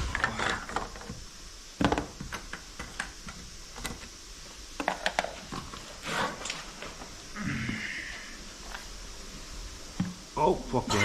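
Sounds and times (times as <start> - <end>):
scraping rustle: 5.5 - 7.1.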